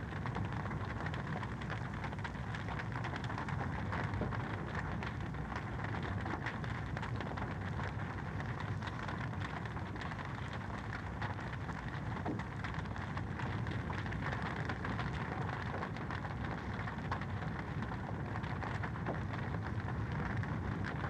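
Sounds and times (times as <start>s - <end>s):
low rumble of burning: 0.0s - 21.0s.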